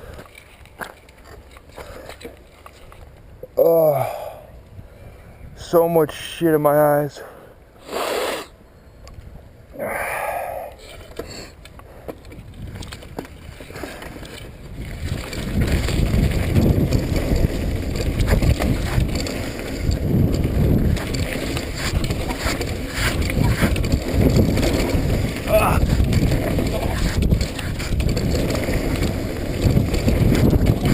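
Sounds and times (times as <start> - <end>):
bike tyres on mud: 10.0 - 30.9
bike rattling over bumps: 10.8 - 30.9
wind buffeting microphone: 12.3 - 30.9.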